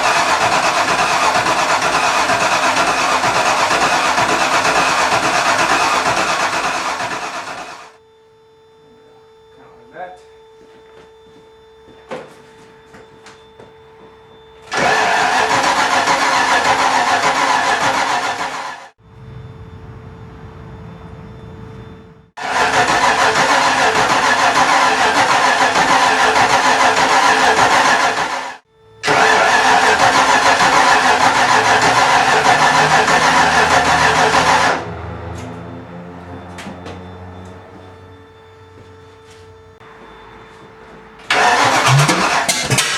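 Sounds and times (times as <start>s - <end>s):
engine cranking: 0.0s - 8.0s, 14.7s - 18.9s, 22.4s - 38.0s, 41.3s - 42.9s
engine running steadily: 0.0s - 8.0s, 14.6s - 42.9s
low engine rumble: 19.0s - 28.0s, 29.1s - 42.4s.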